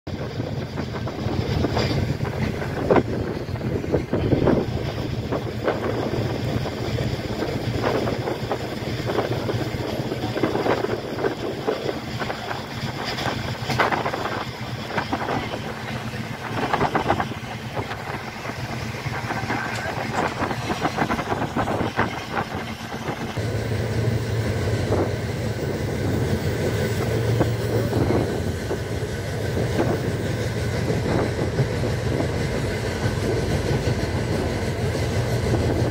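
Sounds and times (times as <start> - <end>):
train rumble and rushing air: 0.0 - 35.9
wheels clicking over rails: 0.1 - 23.4.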